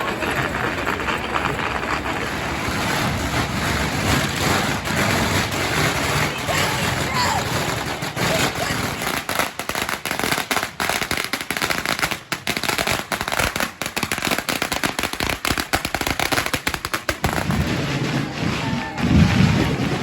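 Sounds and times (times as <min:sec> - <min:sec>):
low rumbling noise: 0:00.0 - 0:09.3, 0:17.3 - 0:20.0
firecrackers cracking and banging: 0:00.0 - 0:20.0.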